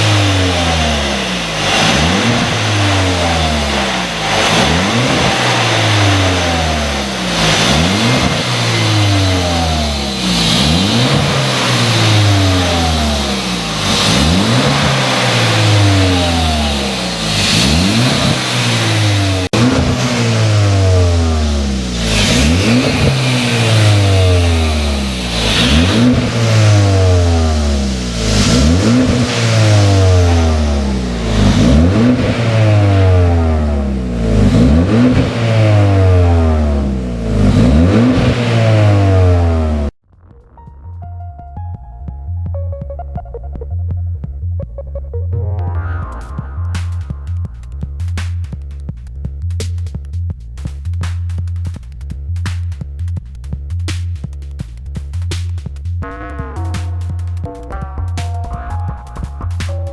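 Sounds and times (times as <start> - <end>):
car engine revving: 0.0 - 41.7.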